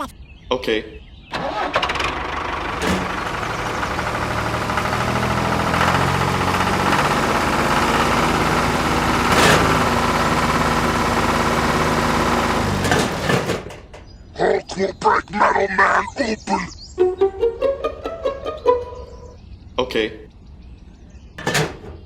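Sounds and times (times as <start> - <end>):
small engine running: 1.4 - 13.8.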